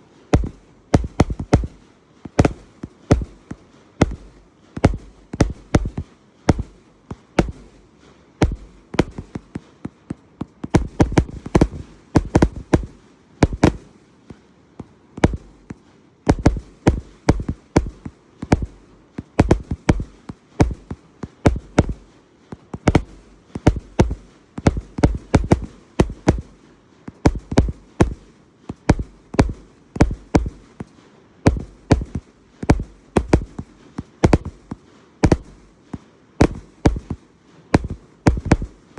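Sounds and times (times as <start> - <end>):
firework cake firing shots: 0.4 - 7.8, 8.4 - 14.0, 15.2 - 30.9.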